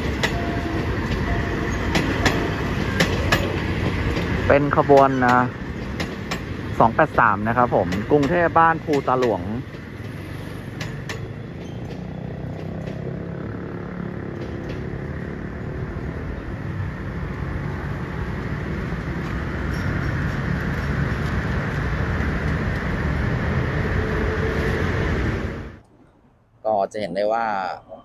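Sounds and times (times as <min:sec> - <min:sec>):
train rumbling over rails: 0:00.0 - 0:25.8.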